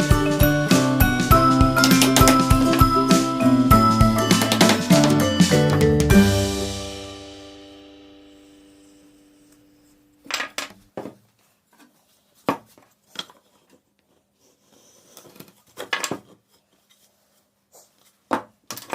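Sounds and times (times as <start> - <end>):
background music: 0.0 - 8.9.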